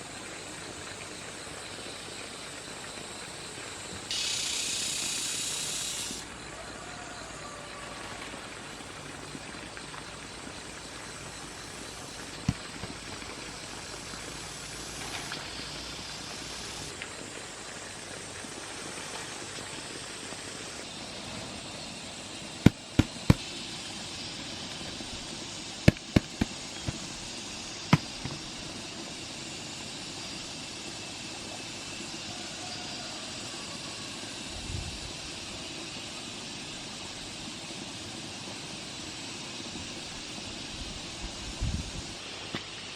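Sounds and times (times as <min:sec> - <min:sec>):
outdoor hiss: 0:00.0 - 0:42.9
sharp cracks or knocks: 0:22.7 - 0:23.5, 0:25.9 - 0:27.1, 0:27.9 - 0:28.4.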